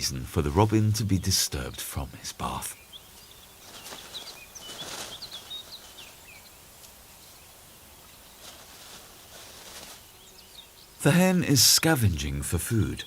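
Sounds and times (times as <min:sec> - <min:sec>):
faint forest background: 0:00.0 - 0:13.0
small birds chirping: 0:00.0 - 0:13.0
brief rustles: 0:03.6 - 0:05.8, 0:08.4 - 0:10.1.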